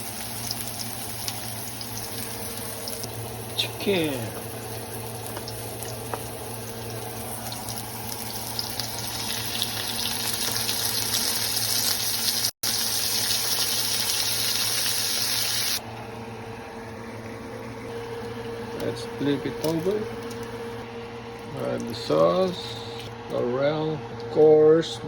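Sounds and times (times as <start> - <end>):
chicken sizzling in a hot pan: 0.0 - 15.8.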